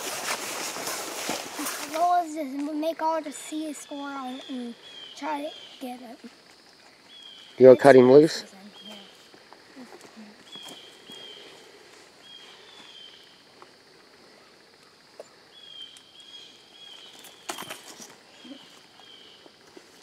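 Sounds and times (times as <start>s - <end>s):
rustling in dry leaves: 0.0s - 4.9s, 5.5s - 14.8s, 15.4s - 20.0s.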